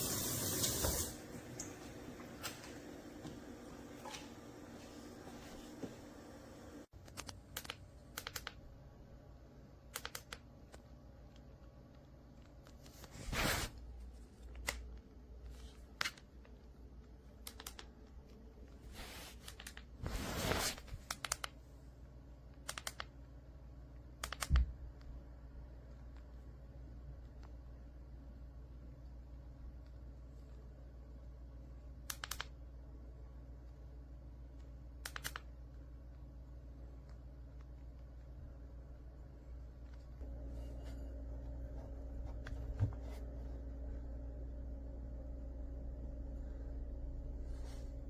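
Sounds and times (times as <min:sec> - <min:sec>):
steady hum: 0:00.0 - 0:09.8, 0:24.8 - 0:48.0.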